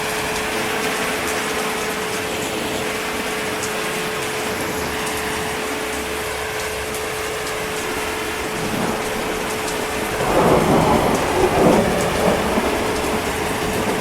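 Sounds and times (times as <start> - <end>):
heavy rain: 0.0 - 14.0
thunder rumbling: 4.6 - 14.0.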